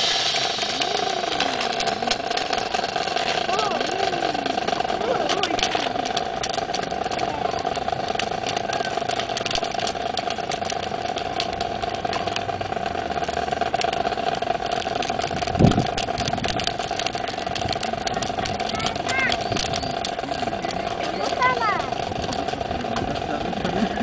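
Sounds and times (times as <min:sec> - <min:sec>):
sharp clicks: 0:00.0 - 0:23.8
steady humming drone: 0:00.0 - 0:24.0.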